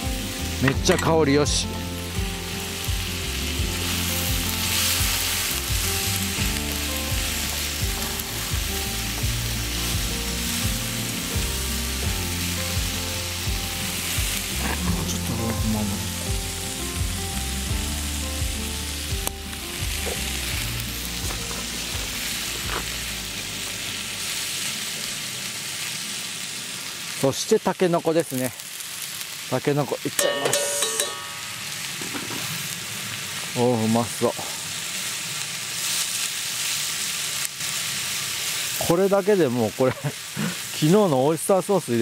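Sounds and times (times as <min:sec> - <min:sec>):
background music: 0:00.0 - 0:24.9
food sizzling in a wok: 0:00.0 - 0:42.0.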